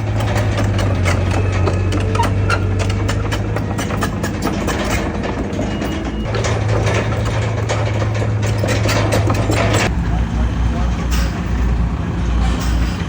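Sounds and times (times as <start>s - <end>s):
dense rapid clattering: 0.0s - 9.9s
diesel machinery engine hum: 0.0s - 13.0s.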